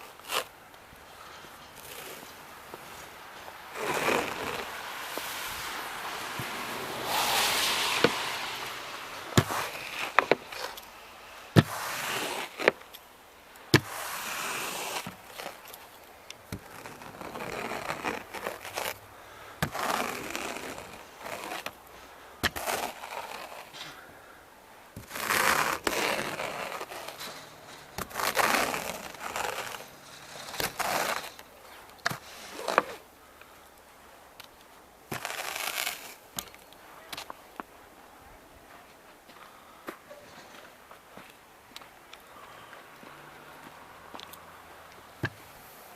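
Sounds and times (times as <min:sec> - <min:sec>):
snow brushed off car: 0:00.0 - 0:12.9, 0:13.7 - 0:24.0, 0:25.0 - 0:33.1, 0:35.1 - 0:37.4.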